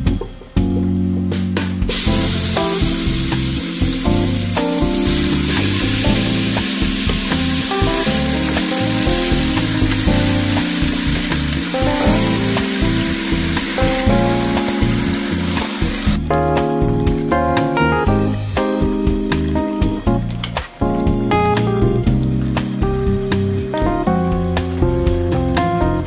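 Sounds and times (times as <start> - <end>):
background music with bass: 0.0 - 26.0
food sizzling in hot oil: 1.9 - 16.2.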